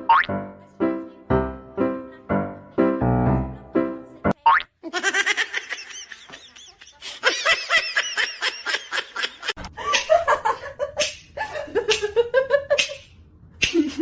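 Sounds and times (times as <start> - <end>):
lower-pitched laugh: 4.8 - 13.0, 13.6 - 14.0.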